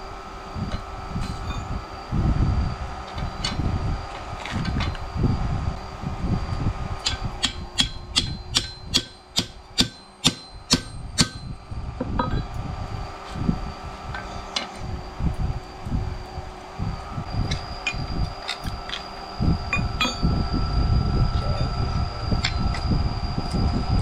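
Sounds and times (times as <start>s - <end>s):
steady low rumble: 0.0s - 24.0s
ringing strikes on metal: 7.0s - 12.6s, 19.7s - 20.3s.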